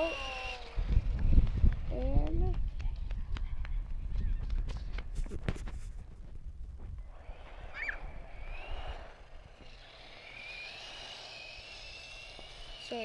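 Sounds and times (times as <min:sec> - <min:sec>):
toy car electric motor whining: 0:00.0 - 0:01.5, 0:07.1 - 0:13.0.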